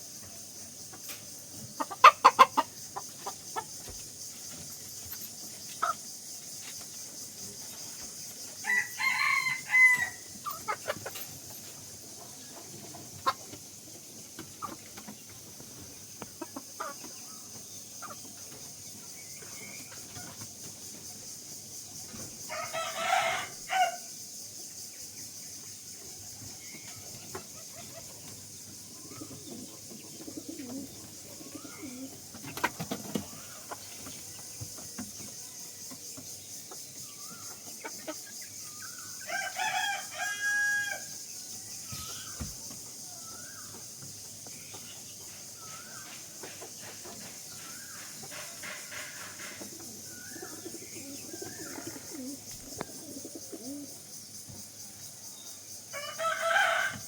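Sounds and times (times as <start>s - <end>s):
chicken chirps and clucks: 0.4s - 21.3s, 25.6s - 44.1s, 44.7s - 54.0s
rooster crowing: 8.6s - 10.3s, 22.5s - 24.1s, 39.2s - 41.2s, 55.9s - 57.0s
loud harsh chicken call: 8.6s - 10.7s, 39.3s - 41.1s.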